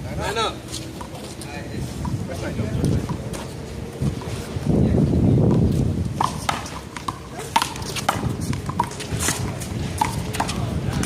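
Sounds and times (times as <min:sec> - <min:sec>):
handball smacks and bounces: 0:06.2 - 0:10.6.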